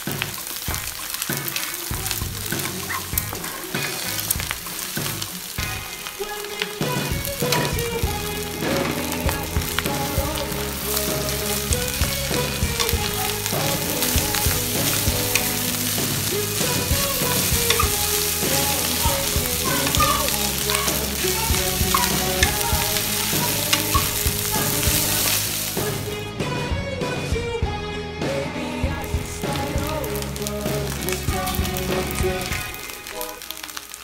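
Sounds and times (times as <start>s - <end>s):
spatula clicking and scraping pan: 0.0s - 5.8s, 6.4s - 26.0s
fried rice sizzling in a wok: 0.0s - 26.2s, 29.0s - 34.0s.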